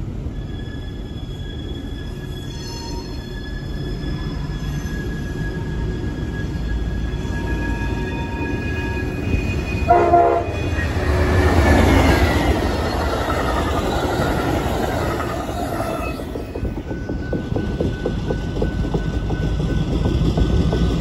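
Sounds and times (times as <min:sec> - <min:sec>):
train rushing past: 0:03.4 - 0:21.0
train horn blast: 0:09.8 - 0:11.4.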